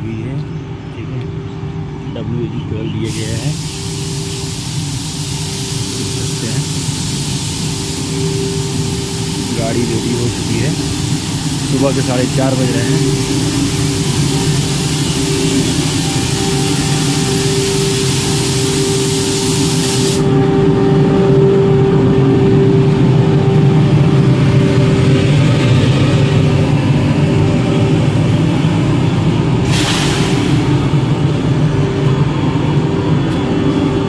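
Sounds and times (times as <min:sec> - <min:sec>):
electric locomotive machinery humming: 0:00.0 - 0:34.0
high hiss: 0:03.0 - 0:21.5, 0:24.8 - 0:32.2.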